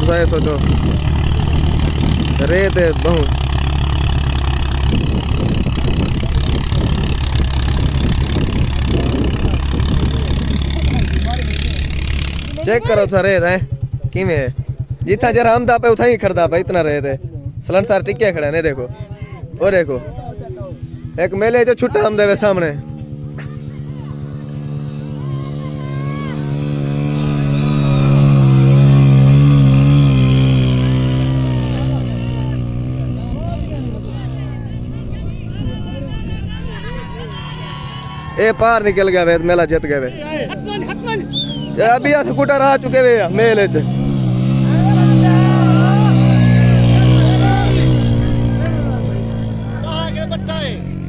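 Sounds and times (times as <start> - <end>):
motorcycle engine rumbling: 0.0 - 51.0.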